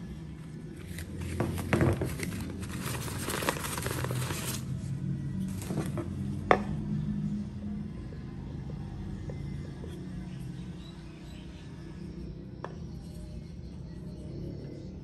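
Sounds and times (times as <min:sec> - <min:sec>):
soft background music: 0:00.0 - 0:15.0
packaging rustling: 0:01.3 - 0:04.7.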